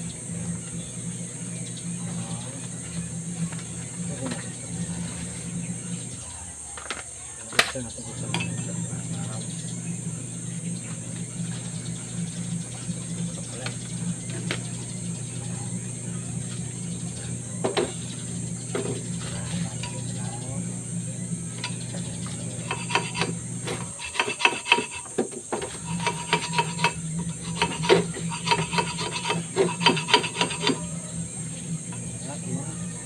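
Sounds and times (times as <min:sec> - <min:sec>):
motor hum: 0:00.0 - 0:33.0
cutting tool scraping metal: 0:21.4 - 0:31.1.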